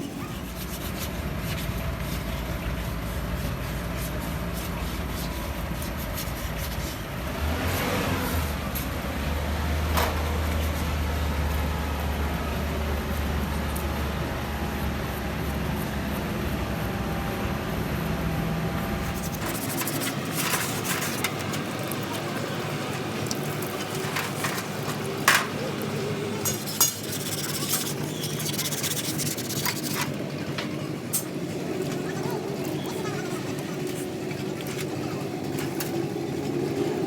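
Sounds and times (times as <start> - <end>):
clicks and knocks of hand tools: 19.1 - 22.3, 22.9 - 31.4.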